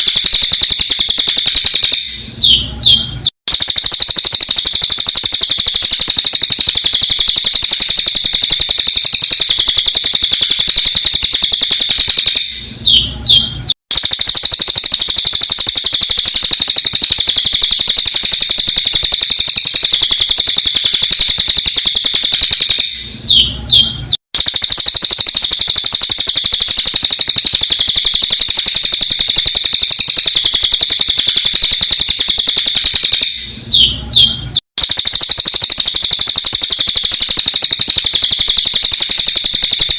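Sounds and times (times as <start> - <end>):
songbird rapid high chatter: 0.0 - 2.3, 3.5 - 13.1, 13.9 - 23.5, 24.4 - 33.6, 34.8 - 39.9
bird chirps: 0.0 - 39.9.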